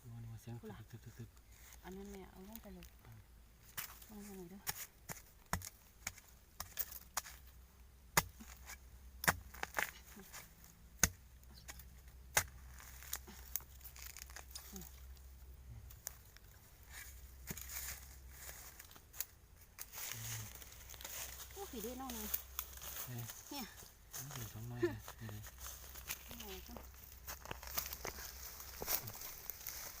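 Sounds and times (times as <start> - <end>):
leaves and stems rustling: 0.6 - 7.6, 8.3 - 30.0
chopping bamboo: 3.8 - 7.4, 8.1 - 10.4, 11.0 - 14.6.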